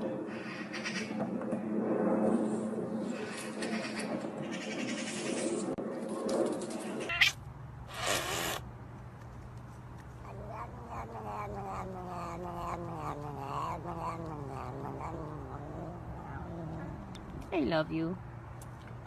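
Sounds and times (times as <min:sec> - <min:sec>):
cat yowling: 0:10.2 - 0:17.3.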